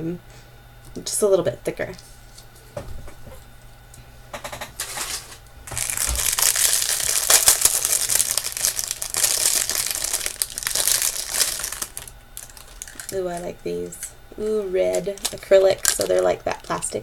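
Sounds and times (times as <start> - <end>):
packaging crinkling: 4.8 - 17.0.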